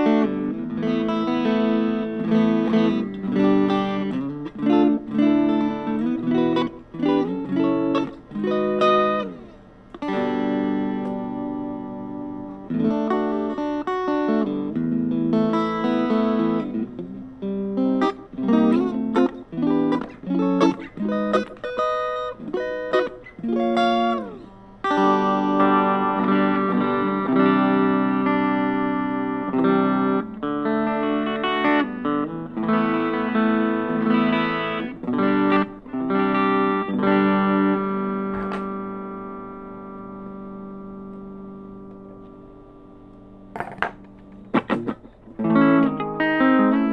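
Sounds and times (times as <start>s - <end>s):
electric guitar playing: 0.0s - 46.9s.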